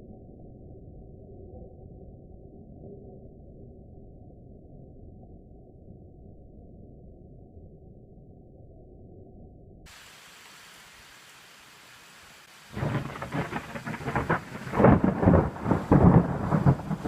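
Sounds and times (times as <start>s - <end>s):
faint steady hiss: 9.9s - 17.0s
thunderclap with crackling rumble: 12.7s - 17.0s.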